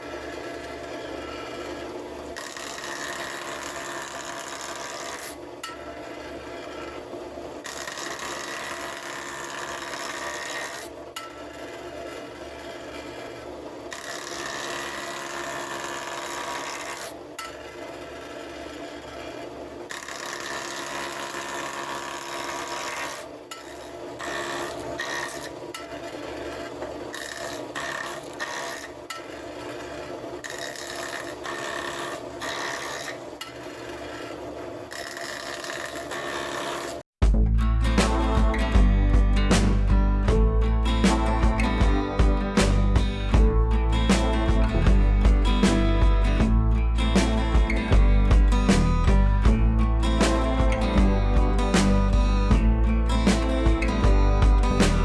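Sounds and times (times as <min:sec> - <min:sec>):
tool scraping spinning wood: 0:00.0 - 0:37.0
wood lathe running: 0:00.2 - 0:33.2, 0:33.8 - 0:37.0.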